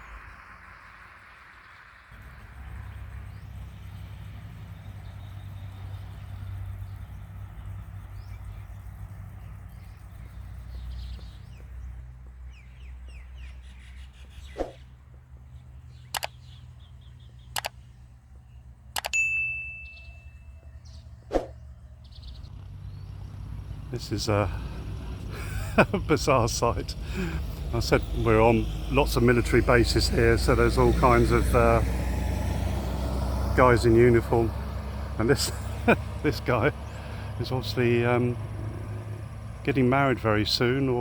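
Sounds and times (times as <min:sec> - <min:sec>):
birds chirping faintly: 0:00.0 - 0:41.0
sharp clicks or knocks: 0:16.1 - 0:16.4, 0:17.5 - 0:17.8, 0:19.0 - 0:19.2
brief ringing tone: 0:19.1 - 0:20.8.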